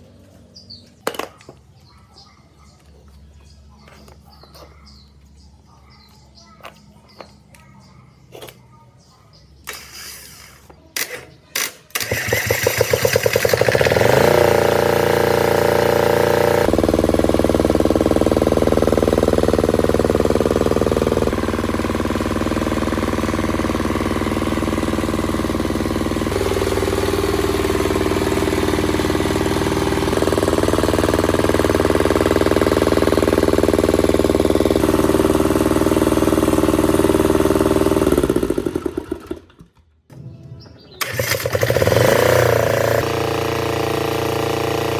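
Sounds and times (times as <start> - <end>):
generator engine running: 11.6 - 39.6, 40.8 - 44.9.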